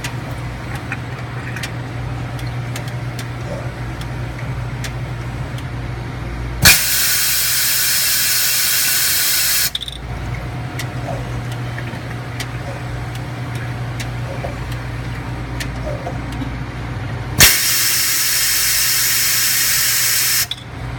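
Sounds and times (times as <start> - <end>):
washing machine humming: 0.0 - 20.9
hissing jet blasts: 6.6 - 9.7.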